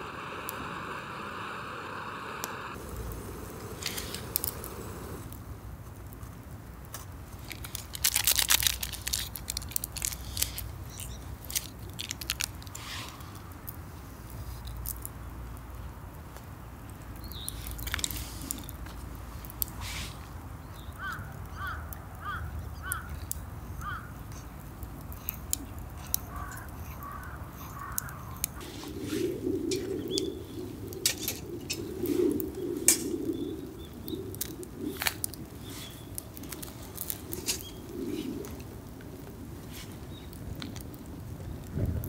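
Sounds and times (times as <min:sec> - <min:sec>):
birds calling: 0:20.6 - 0:38.4.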